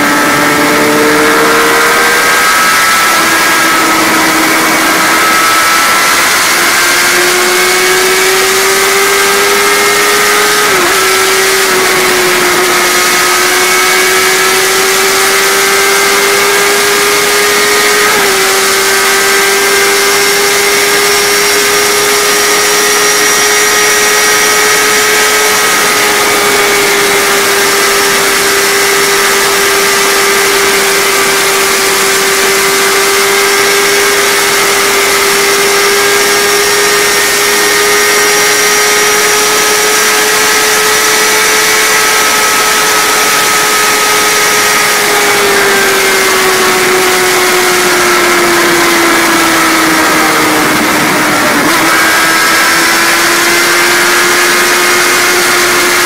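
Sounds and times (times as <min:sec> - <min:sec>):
heavy wind rush: 0:00.0 - 0:07.4, 0:47.4 - 0:52.8
motorcycle engine at high revs: 0:00.0 - 0:56.0.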